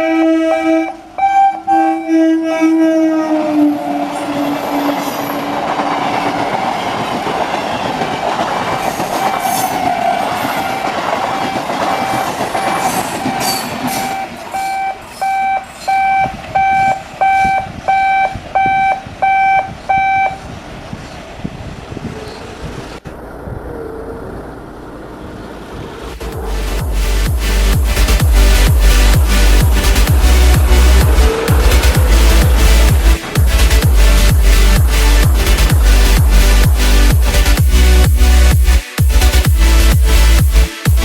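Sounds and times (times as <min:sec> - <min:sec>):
train horn: 0:00.0 - 0:06.8, 0:09.1 - 0:20.5, 0:29.0 - 0:35.2
train carriages clattering on rails: 0:04.4 - 0:17.2.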